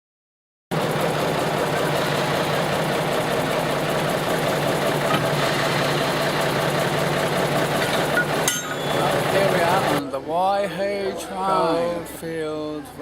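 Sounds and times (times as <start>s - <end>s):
train engine idling: 0.7s - 10.0s.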